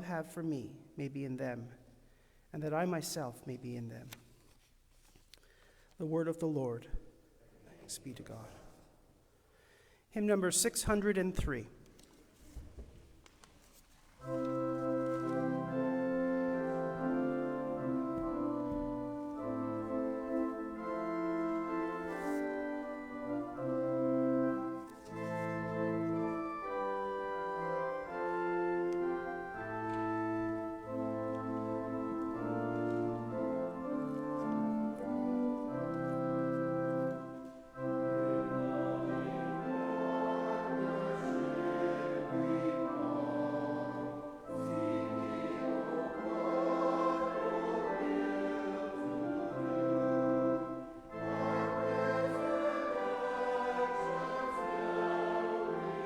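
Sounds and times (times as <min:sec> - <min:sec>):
church organ chords: 0:14.2 - 0:56.0
voices singing a hymn: 0:14.2 - 0:56.0.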